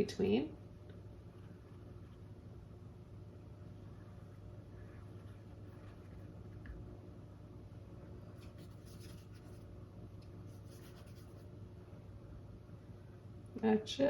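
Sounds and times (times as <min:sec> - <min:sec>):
low steady hum: 0:00.0 - 0:14.0
paintbrush strokes on canvas: 0:08.3 - 0:09.7, 0:10.4 - 0:11.5.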